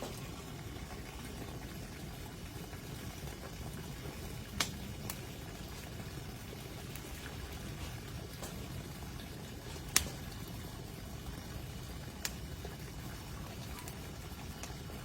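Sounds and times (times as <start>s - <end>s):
campfire hissing: 0.0s - 15.0s
fire sharp snaps: 4.5s - 5.3s, 9.6s - 10.4s, 12.1s - 12.5s, 13.7s - 14.8s.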